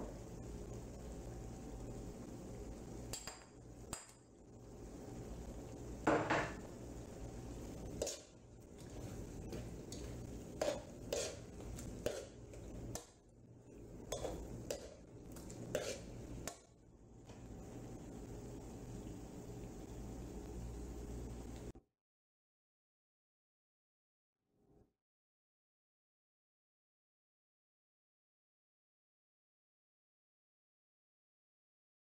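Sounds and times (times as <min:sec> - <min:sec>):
spatula scraping a pan: 0:07.7 - 0:13.1, 0:14.0 - 0:16.7.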